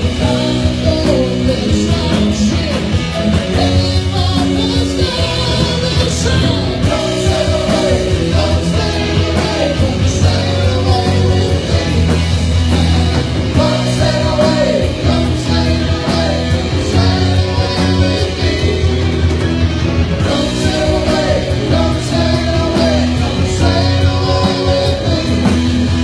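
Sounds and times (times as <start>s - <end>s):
person singing: 0.0s - 19.4s, 20.2s - 26.0s
live rock song: 0.0s - 26.0s.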